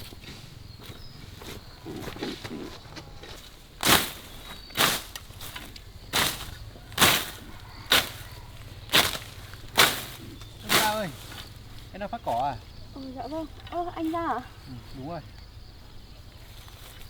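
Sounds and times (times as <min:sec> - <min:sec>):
blade swishing through grass: 0:03.8 - 0:11.6.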